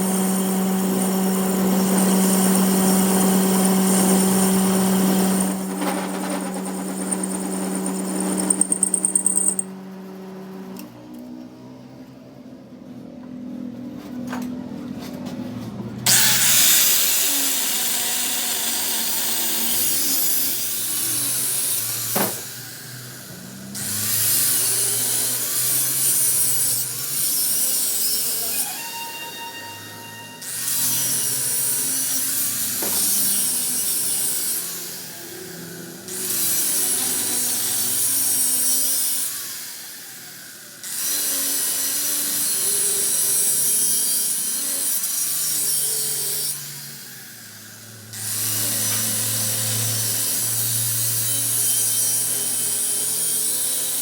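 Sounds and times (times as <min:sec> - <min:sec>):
power tool hissing on metal: 0:00.0 - 0:09.6
steady machine whine: 0:01.2 - 0:10.8.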